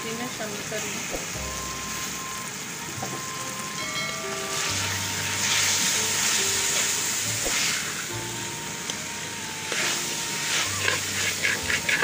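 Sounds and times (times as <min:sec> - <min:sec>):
chickpeas sizzling in a pan: 0:00.0 - 0:12.0
soft background music: 0:00.0 - 0:12.0
spoon stirring in a pan: 0:09.7 - 0:12.0.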